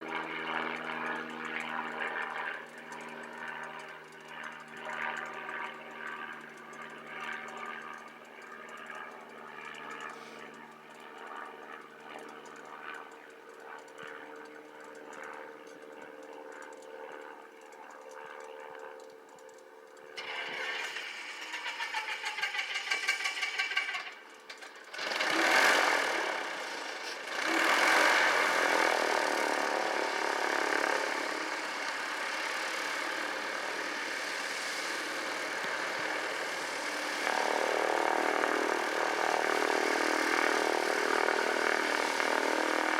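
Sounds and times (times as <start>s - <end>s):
propeller plane engine droning: 0.0s - 42.9s
rattle: 20.2s - 37.3s.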